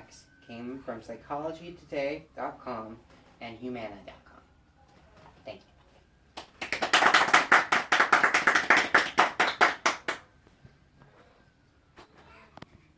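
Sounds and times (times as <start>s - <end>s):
hands clapping: 6.4s - 10.2s.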